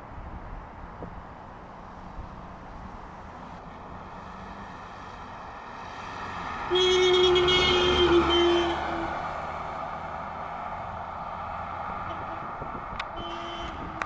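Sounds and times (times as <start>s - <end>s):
running vehicle noise: 0.0s - 14.0s
vehicle horn: 6.6s - 9.6s, 12.0s - 14.0s.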